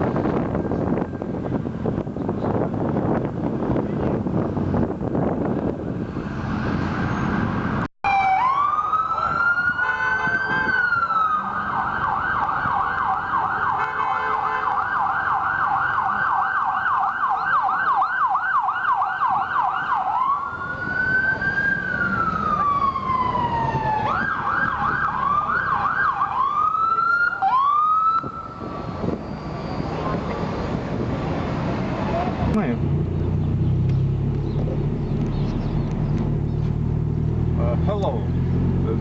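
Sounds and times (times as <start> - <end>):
traffic noise: 0.0 - 39.0
police siren: 8.0 - 30.2.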